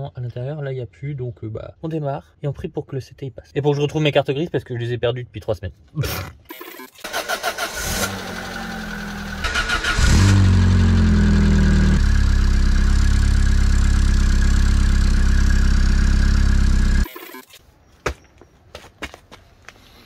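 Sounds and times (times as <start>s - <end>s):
car engine starting and idling: 7.0s - 17.1s.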